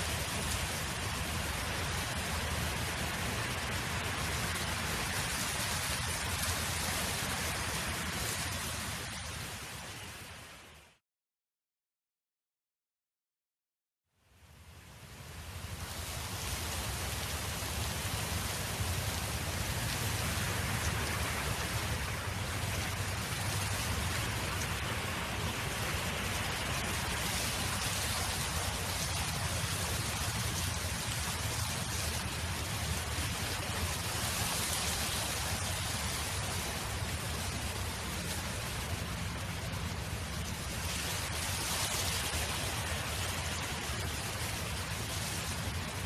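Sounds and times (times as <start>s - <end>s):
wind rushing with low rumble: 15.0s - 46.0s.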